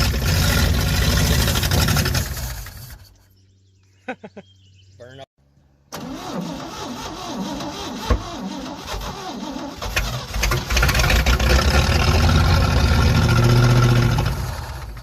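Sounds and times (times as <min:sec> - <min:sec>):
engine starter cranking: 0:05.9 - 0:12.1.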